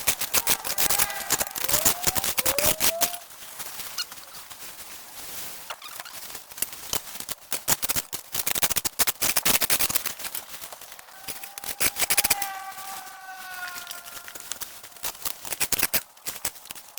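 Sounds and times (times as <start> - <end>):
rapid clicks and snaps: 0.0 - 3.2, 6.0 - 16.9
long drawn-out tone: 0.6 - 3.2.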